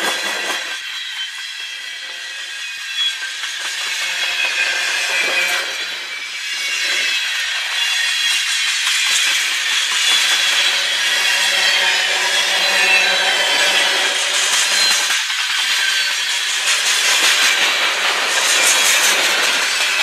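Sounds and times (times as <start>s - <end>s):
train wheels grinding on rail: 0.0s - 20.0s.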